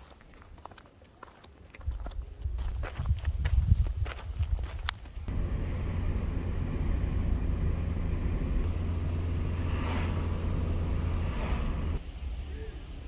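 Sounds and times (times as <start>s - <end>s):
moving vehicle rumble: 2.7s - 13.0s.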